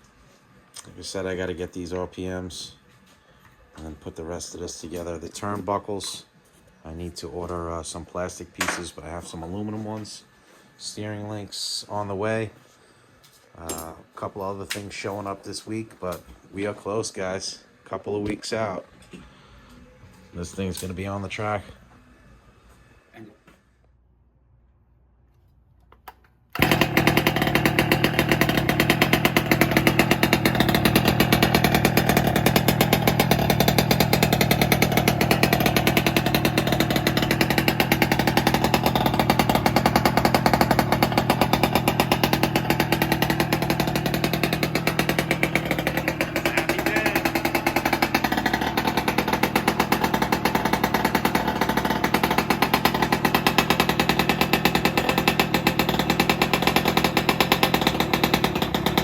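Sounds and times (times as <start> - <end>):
small gas engine revving: 26.6 - 59.0.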